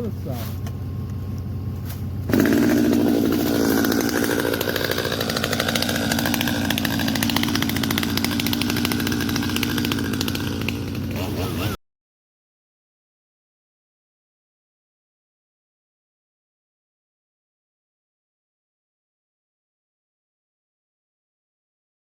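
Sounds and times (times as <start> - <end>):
chainsaw cutting through tree: 2.3 - 11.8.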